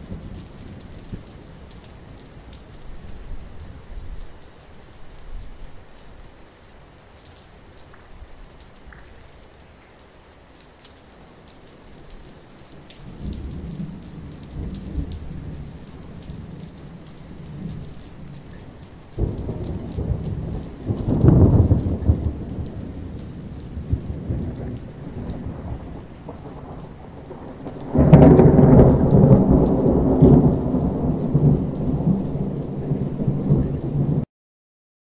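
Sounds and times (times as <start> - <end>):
thunder rumbling: 0.0 - 1.9, 12.8 - 34.3
steady rain: 0.0 - 34.3
loud thunderclap: 19.2 - 34.3.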